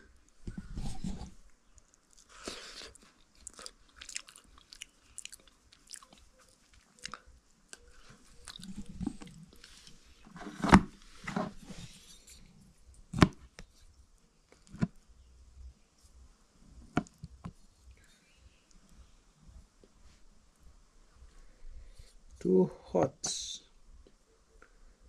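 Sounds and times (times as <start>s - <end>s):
person chewing: 1.8s - 10.0s.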